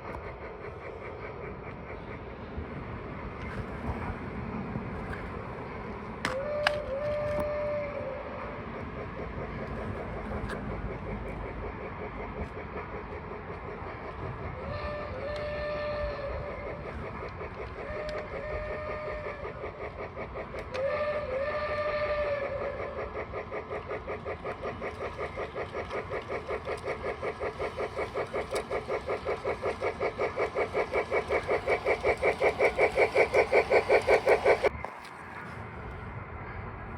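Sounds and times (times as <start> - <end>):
model train rumbling on track: 0.0 - 36.9
whistle-like tone: 6.3 - 8.4.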